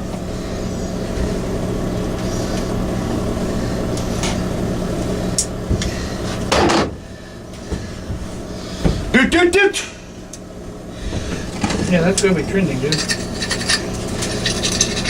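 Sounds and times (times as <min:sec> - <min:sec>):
mechanical hum: 0:00.0 - 0:15.0
hand tools clicking on metal: 0:12.9 - 0:15.0
loud clatter: 0:12.9 - 0:15.0.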